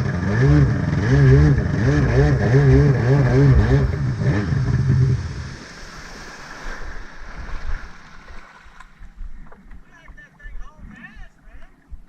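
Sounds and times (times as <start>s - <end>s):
jet ski engine revving: 0.0s - 7.1s
wind: 0.0s - 12.0s
water splashing: 2.2s - 12.0s.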